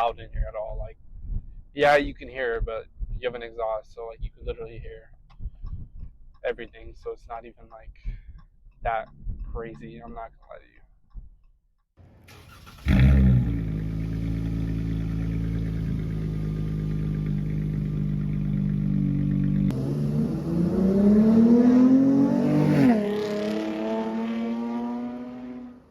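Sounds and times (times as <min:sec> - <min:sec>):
car engine idling and revving: 0:12.0 - 0:25.9.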